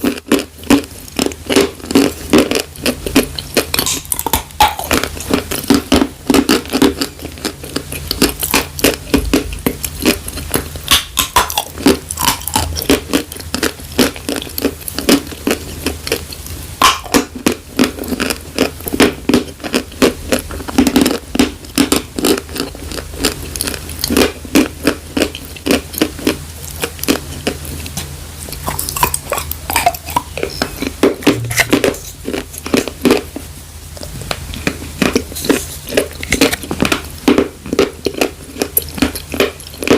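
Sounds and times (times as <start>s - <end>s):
chewing dry chalk crunches: 0.0s - 33.4s, 34.0s - 39.9s.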